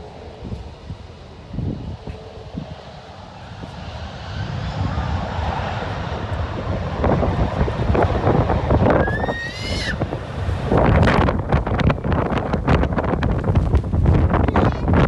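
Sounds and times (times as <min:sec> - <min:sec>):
jet engines rumbling: 0:00.0 - 0:15.0
wind on microphone: 0:00.0 - 0:15.0
rising whistle-like tone: 0:09.0 - 0:10.0.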